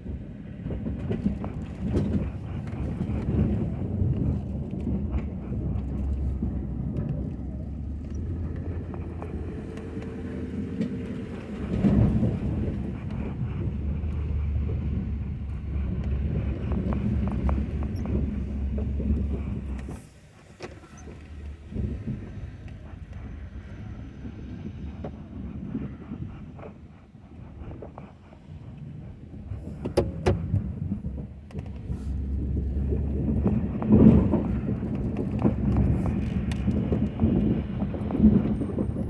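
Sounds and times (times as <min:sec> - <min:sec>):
pickup truck engine rumble: 0:00.0 - 0:39.0
knocks and clunks: 0:29.5 - 0:38.8.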